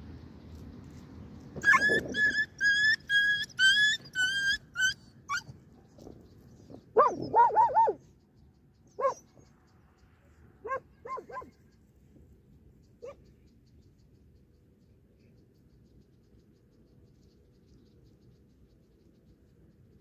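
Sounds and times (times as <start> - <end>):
dogs yelping: 1.6 - 5.5, 7.0 - 8.1, 9.0 - 9.3, 10.7 - 11.5.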